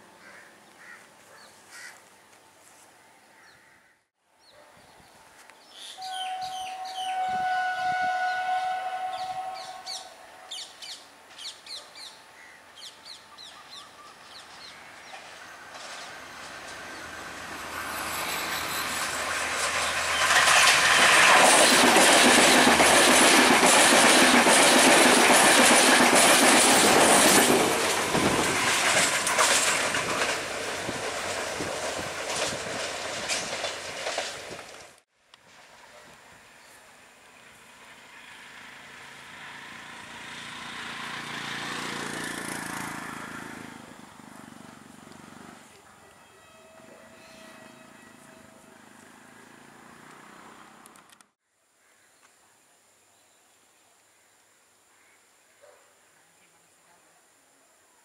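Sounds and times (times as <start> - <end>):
train horn chord: 6.0 - 10.6, 45.9 - 49.2
train passing at speed: 6.0 - 50.9
wheels clacking over rail joints: 14.6 - 35.0.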